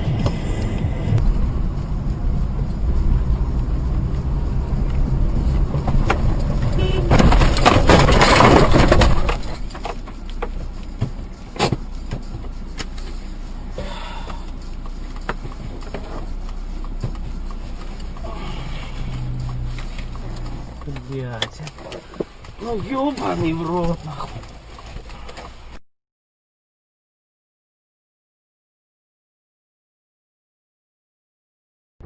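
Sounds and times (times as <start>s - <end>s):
loud rushing noise: 0.0s - 9.7s
car interior road rumble: 0.0s - 25.8s.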